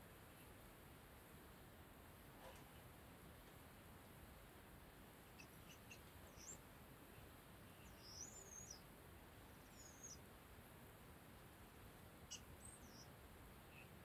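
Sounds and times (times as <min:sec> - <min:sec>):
quiet steady hiss: 0:00.0 - 0:14.0
high-pitched bird chirps: 0:07.8 - 0:08.8.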